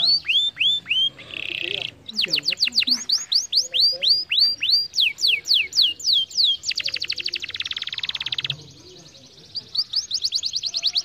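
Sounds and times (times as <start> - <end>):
canary singing: 0.0 - 11.0.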